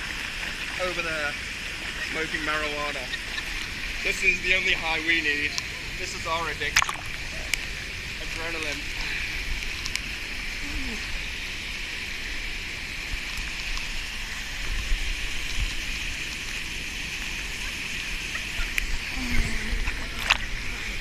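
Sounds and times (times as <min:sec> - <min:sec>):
waterfall rushing: 0:00.0 - 0:21.0
sharp splash: 0:06.6 - 0:07.4.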